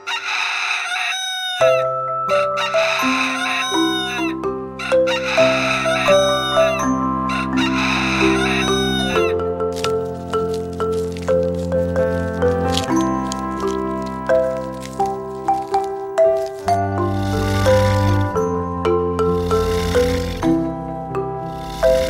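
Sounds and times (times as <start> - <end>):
sustained background music: 0.0 - 22.0
swamphen harsh calls: 2.4 - 9.4, 16.6 - 18.4, 19.3 - 20.6, 21.4 - 22.0.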